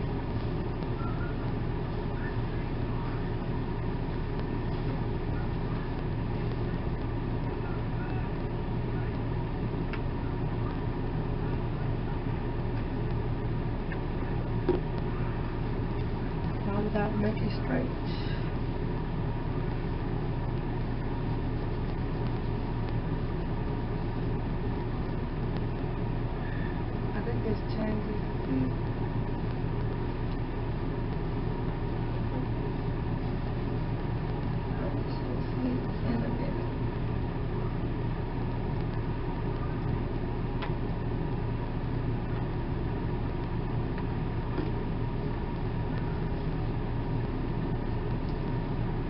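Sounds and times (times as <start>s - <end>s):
noisy rumble: 0.0s - 49.0s
steady low hum: 0.0s - 49.0s.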